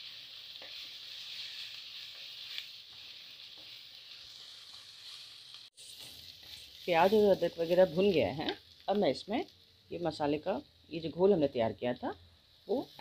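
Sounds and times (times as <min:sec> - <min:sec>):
onions sizzling in hot oil: 0:00.0 - 0:13.0
faint spatula scrapes: 0:00.6 - 0:07.8.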